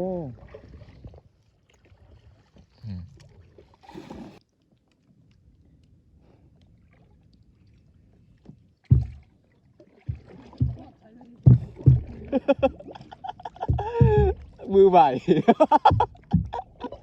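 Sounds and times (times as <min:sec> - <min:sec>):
faint wash of water: 0:00.0 - 0:17.0
knock against boat: 0:08.9 - 0:09.3, 0:10.1 - 0:10.9, 0:11.5 - 0:12.9, 0:13.5 - 0:14.6, 0:15.7 - 0:17.0
water splash: 0:08.9 - 0:17.0.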